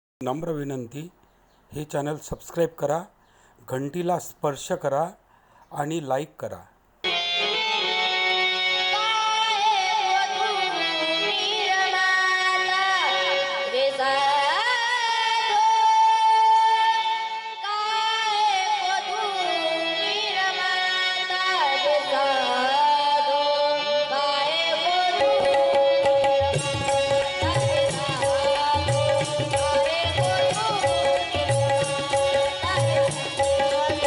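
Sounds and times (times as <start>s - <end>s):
man singing devotional song: 0.2s - 7.3s, 18.0s - 34.0s.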